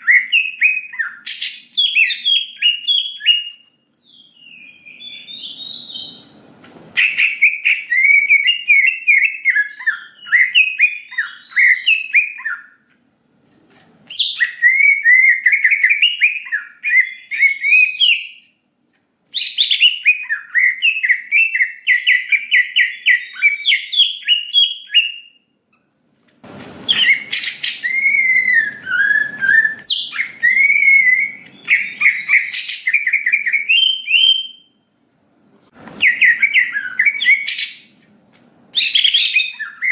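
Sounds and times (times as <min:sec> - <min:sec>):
bird chattering and warbling: 0:26.9 - 0:33.7.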